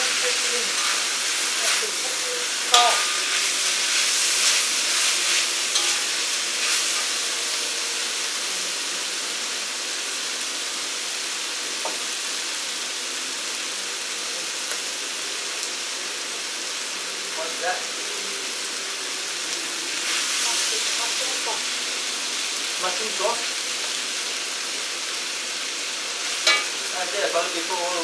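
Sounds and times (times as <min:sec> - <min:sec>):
noodles sizzling in a wok: 0:00.0 - 0:28.0
spatula knocking against wok: 0:26.5 - 0:26.8.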